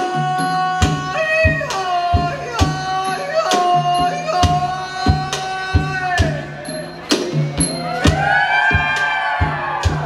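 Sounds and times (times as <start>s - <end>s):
steady drum beat: 0.8s - 10.0s
sliding melody line: 3.9s - 8.5s
low drone: 4.3s - 8.7s.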